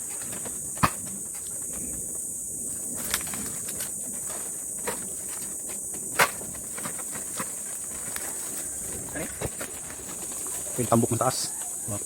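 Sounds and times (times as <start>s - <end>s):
high-pitched insect chorus: 0.0s - 12.0s
sharp snaps and knocks: 0.1s - 1.5s, 3.0s - 8.3s.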